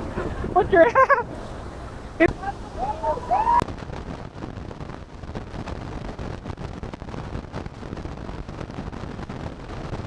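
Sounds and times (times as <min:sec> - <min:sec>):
water and spray roaring: 0:00.0 - 0:03.6
wind buffeting microphone: 0:00.0 - 0:10.0.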